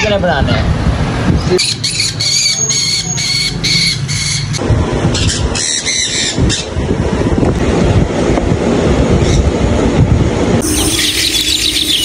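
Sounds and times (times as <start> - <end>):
birds giving shrill squealing calls: 1.4 - 6.7, 10.6 - 12.0.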